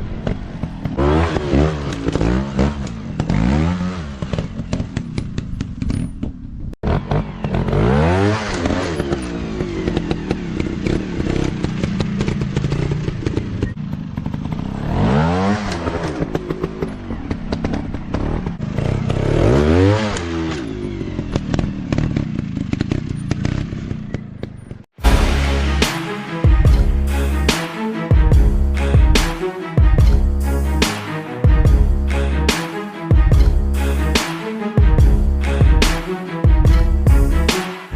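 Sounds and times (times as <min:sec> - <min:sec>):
dirt bike engines revving: 0:00.0 - 0:05.6.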